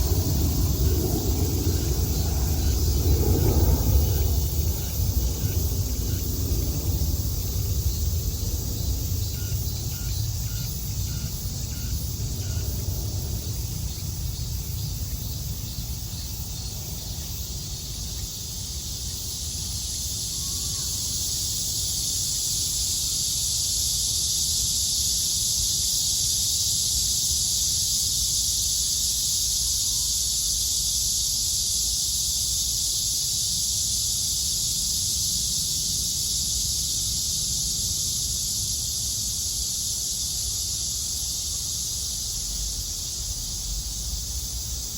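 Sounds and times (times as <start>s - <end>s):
cicadas buzzing: 0.0s - 44.9s.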